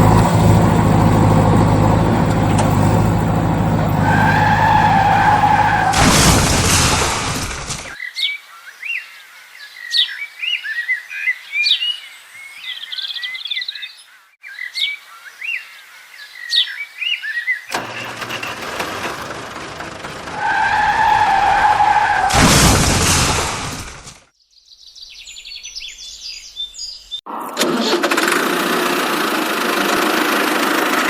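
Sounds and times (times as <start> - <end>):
whining tone: 0.0 - 7.9, 17.7 - 23.8
rushing vehicle noise: 0.0 - 8.0, 17.7 - 24.2, 27.3 - 31.0
small birds chirping: 24.4 - 27.2.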